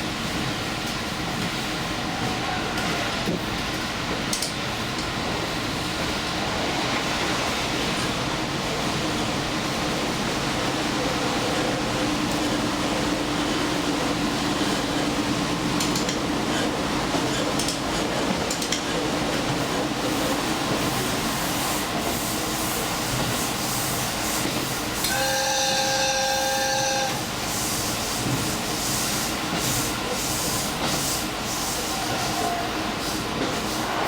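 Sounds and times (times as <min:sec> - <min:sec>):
train interior rumble: 0:00.0 - 0:34.0.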